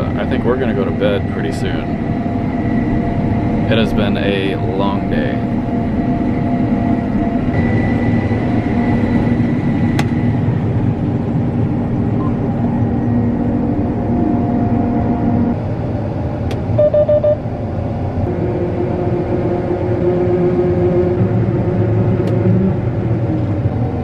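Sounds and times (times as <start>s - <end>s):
combine harvester running: 0.0s - 24.0s
short electronic beeps: 16.8s - 17.4s.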